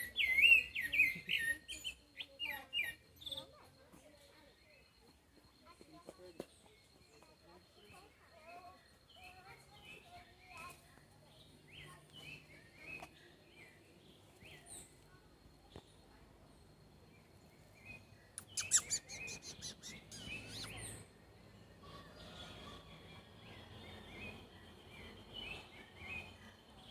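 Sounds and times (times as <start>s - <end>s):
wild birds chirping: 8.8s - 15.2s, 16.1s - 26.9s.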